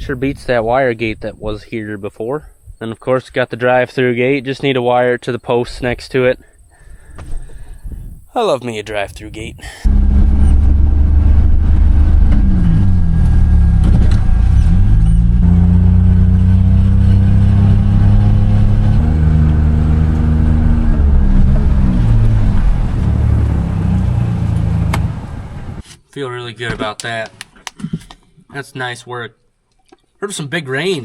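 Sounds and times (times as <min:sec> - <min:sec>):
vehicle engine revving: 0:09.9 - 0:25.8.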